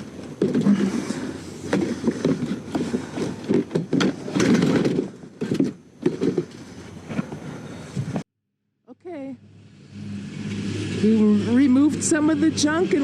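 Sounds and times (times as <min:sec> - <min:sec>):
scrap items clattering: 0:00.0 - 0:07.6.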